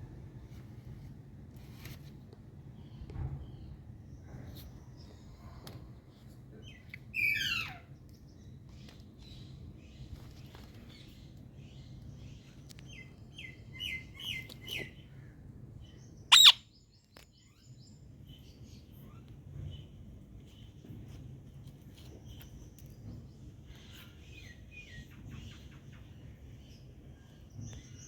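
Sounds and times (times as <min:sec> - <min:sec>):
parrot calling: 0:16.3 - 0:16.6.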